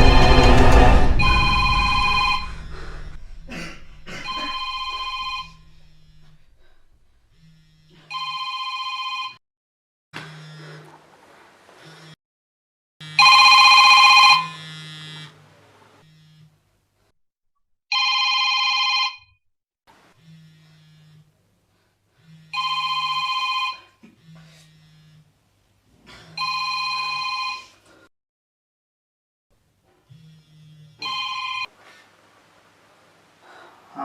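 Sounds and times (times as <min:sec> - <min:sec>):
electronic phone ringtone trill: 0:04.3 - 0:05.6, 0:13.1 - 0:14.6, 0:22.6 - 0:23.8, 0:31.0 - 0:31.7.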